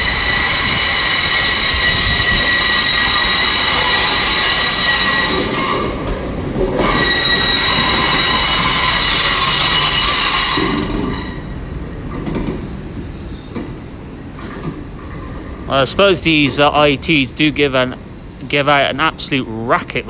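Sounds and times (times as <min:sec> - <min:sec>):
train wheels squealing: 0:00.0 - 0:13.8
low train rumble: 0:00.0 - 0:20.0.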